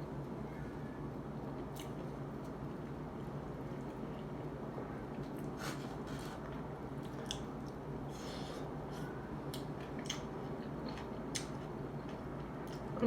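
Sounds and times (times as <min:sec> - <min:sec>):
steady low hum: 0:00.0 - 0:13.0
person chewing: 0:05.2 - 0:12.9.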